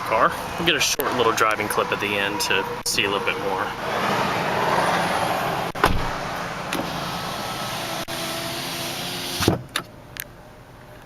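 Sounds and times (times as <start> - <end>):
loud thump: 5.7 - 6.2.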